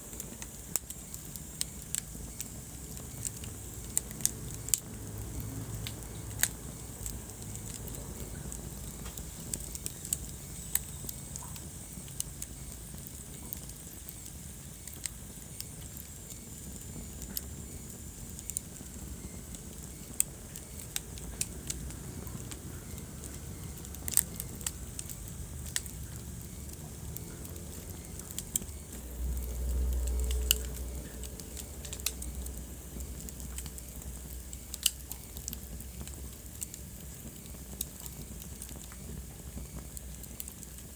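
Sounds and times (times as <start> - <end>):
wood fire crackling: 0.0 - 40.9
low rumble: 25.8 - 34.7.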